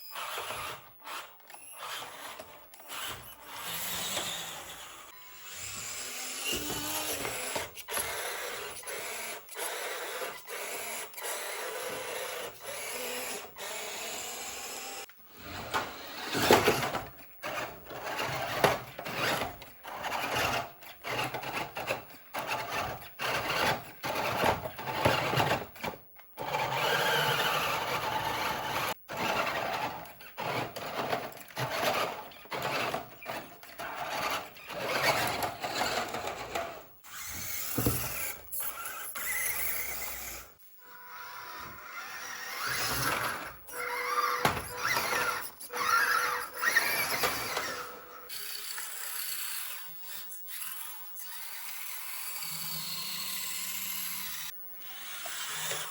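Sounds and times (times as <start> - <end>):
toy car motors whirring: 0.0 - 55.9
squeaking and rattling: 15.6 - 40.4, 41.8 - 48.3.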